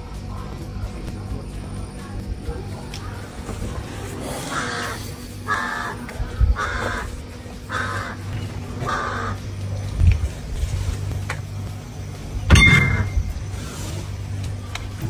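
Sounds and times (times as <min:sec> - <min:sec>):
steady low hum: 0:00.0 - 0:15.0
harsh bird calls: 0:00.2 - 0:09.8.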